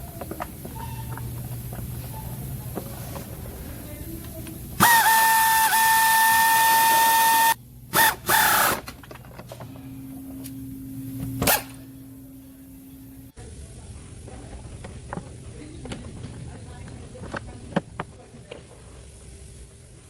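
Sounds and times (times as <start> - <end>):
air tool whining: 0.0 - 13.3.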